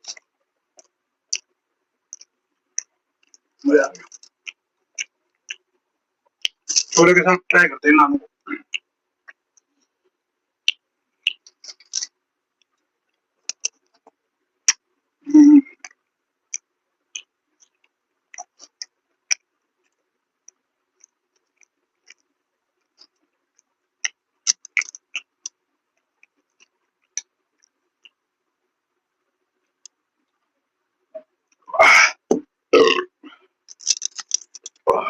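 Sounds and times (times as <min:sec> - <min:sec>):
person chewing food: 0:02.1 - 0:07.0, 0:10.6 - 0:14.8, 0:15.8 - 0:28.3, 0:32.8 - 0:34.9.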